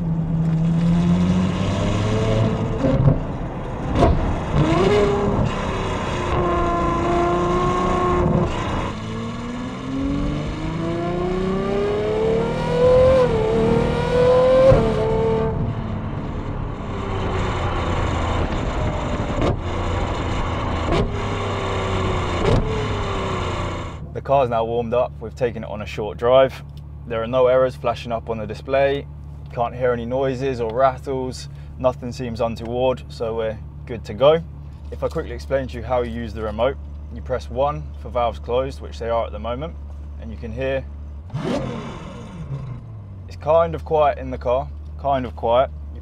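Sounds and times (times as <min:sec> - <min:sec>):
sports car engine accelerating: 0:00.0 - 0:24.3, 0:40.8 - 0:43.9.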